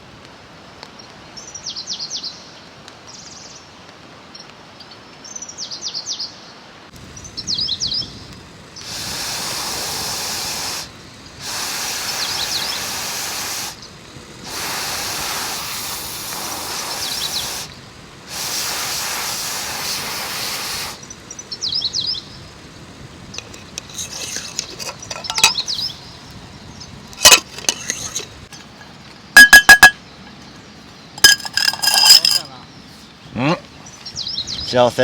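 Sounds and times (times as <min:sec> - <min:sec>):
loud even hissing: 0:06.9 - 0:28.8, 0:31.2 - 0:32.6
bird chirps: 0:12.0 - 0:12.9
ticks and ringing clinks: 0:23.4 - 0:25.8, 0:27.2 - 0:30.4, 0:31.2 - 0:32.5.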